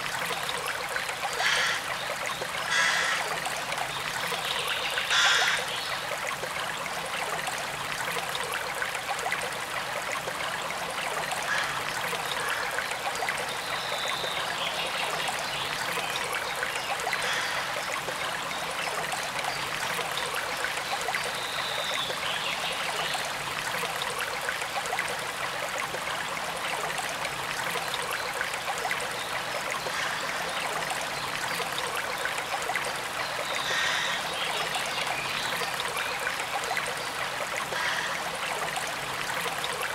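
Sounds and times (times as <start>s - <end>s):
stream running: 0.0s - 39.9s
water trickling: 0.0s - 39.9s.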